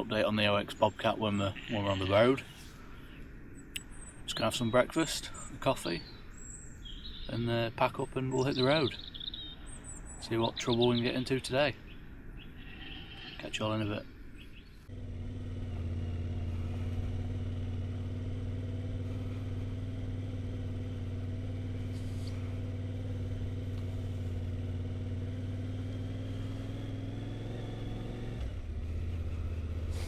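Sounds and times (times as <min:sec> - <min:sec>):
motorcycle engine pulling: 0:15.0 - 0:30.0.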